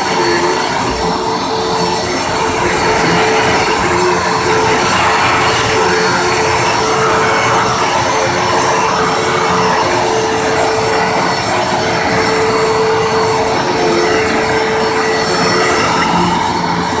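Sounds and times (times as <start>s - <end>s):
upright vacuum cleaner running: 0.0s - 17.0s.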